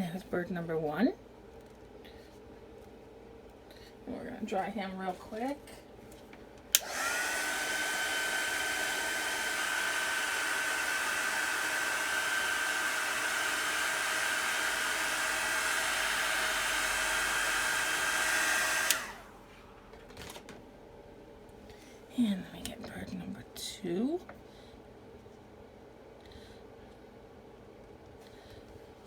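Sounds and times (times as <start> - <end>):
handheld dryer blowing: 6.7 - 19.5.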